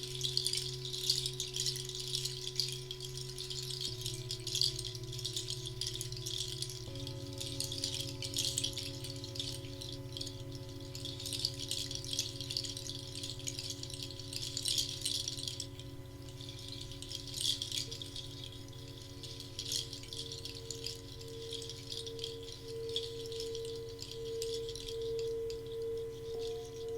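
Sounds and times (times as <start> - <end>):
drone of sustained tones: 0.0 - 12.1, 16.4 - 26.9
shaker rattling: 0.0 - 26.9
high pulsing tone: 21.5 - 26.9.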